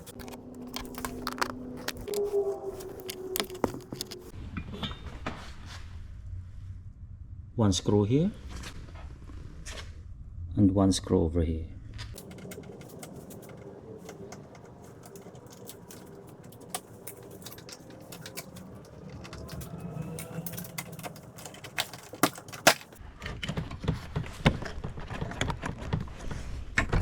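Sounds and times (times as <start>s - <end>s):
plastic and metal clicks: 0.0s - 4.3s, 12.2s - 23.7s.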